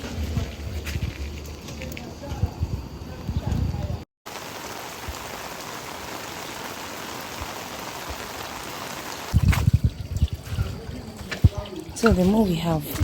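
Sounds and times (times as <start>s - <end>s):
water hissing: 4.3s - 9.5s.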